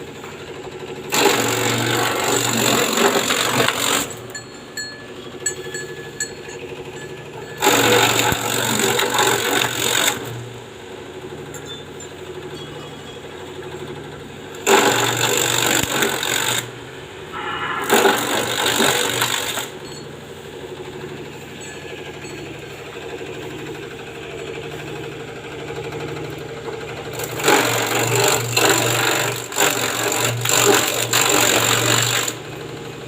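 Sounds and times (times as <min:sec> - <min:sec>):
grass chopper motor humming: 0:00.0 - 0:33.0
blades chopping grass: 0:01.1 - 0:04.2.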